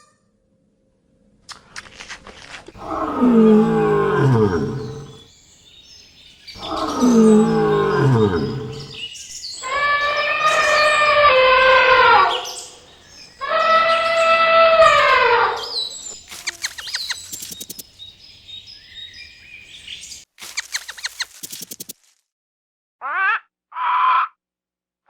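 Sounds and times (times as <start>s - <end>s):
bird chirps and trills: 2.8s - 21.9s.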